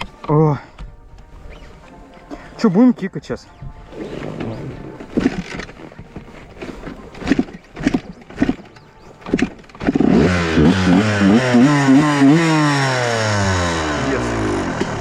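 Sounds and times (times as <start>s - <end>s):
motorcycle kick-start kicks: 4.1s - 15.0s
two-stroke engine revving: 7.2s - 15.0s.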